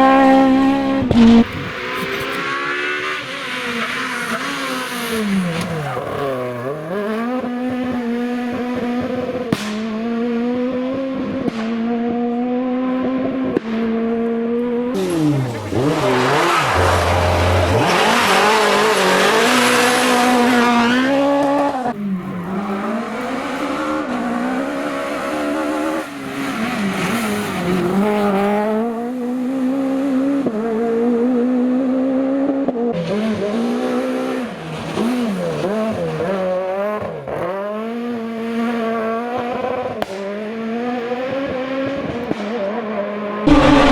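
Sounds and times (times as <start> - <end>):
rally car engine revving hard: 0.0 - 43.9
gearshift crack: 43.5 - 43.9.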